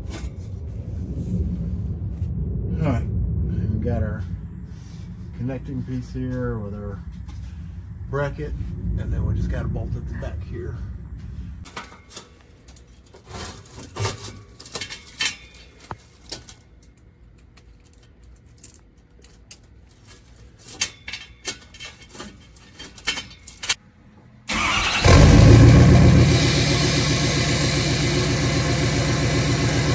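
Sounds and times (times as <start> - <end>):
diesel engine running loud: 24.5 - 29.9.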